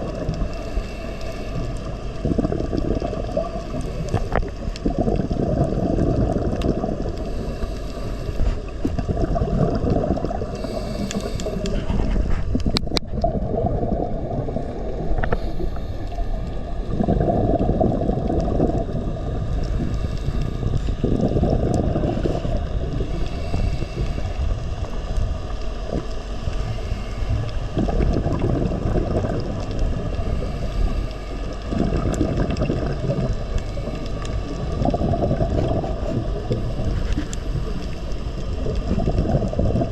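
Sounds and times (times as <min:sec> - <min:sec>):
muffled water rumble: 0:00.0 - 0:39.9
faint clicks: 0:00.1 - 0:13.3, 0:29.1 - 0:39.9.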